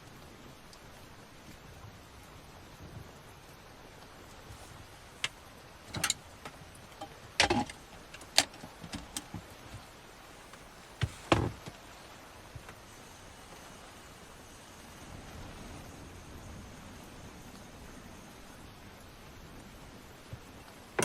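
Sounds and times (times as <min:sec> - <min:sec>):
objects knocking and clattering: 0:07.0 - 0:09.4.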